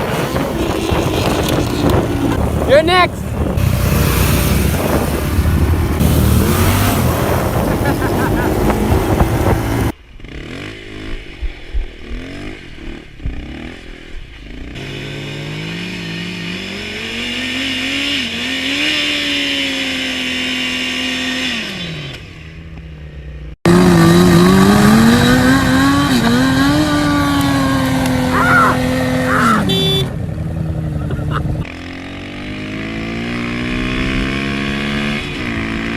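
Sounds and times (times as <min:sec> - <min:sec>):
wavering engine note with rushing: 0:00.0 - 0:10.0
motorcycle engine revving: 0:00.0 - 0:35.9.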